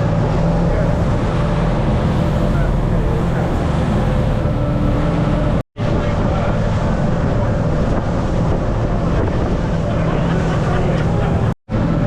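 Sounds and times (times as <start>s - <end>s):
boat engine droning: 0.0s - 12.0s
water noise: 0.0s - 12.0s
wind: 0.0s - 12.0s.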